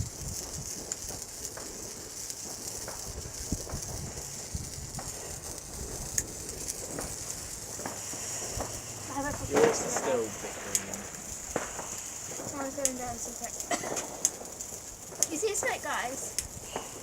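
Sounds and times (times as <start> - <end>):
fireworks crackling: 0.0 - 17.0
fireworks fizzing: 0.0 - 17.0
low rumble: 3.1 - 13.6.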